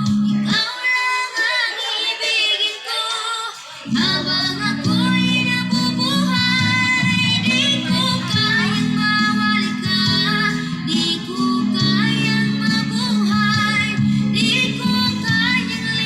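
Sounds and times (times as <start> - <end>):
bass from subwoofer: 0.0 - 0.6, 3.9 - 16.0
guitar: 0.0 - 1.2, 3.6 - 16.0
song through sound system: 0.0 - 16.0
woman singing: 0.0 - 16.0.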